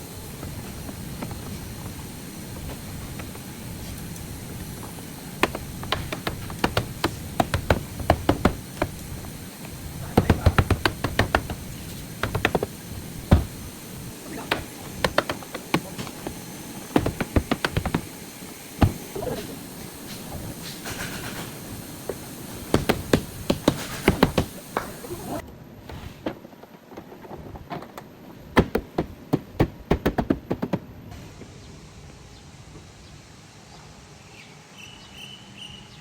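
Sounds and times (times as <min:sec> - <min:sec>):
steady low hum: 0:00.0 - 0:25.8
sharp knocks and taps: 0:04.1 - 0:13.8, 0:14.4 - 0:18.1, 0:20.8 - 0:25.0.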